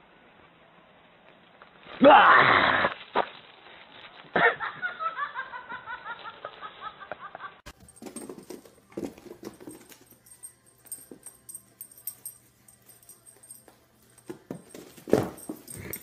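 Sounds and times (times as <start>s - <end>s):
person laughing: 4.3s - 7.7s.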